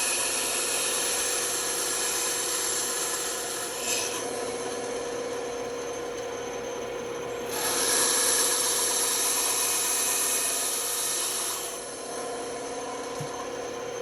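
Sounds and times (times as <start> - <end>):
saw blade cutting wood: 0.0 - 4.4, 7.5 - 12.2
band saw motor hum: 0.0 - 14.0.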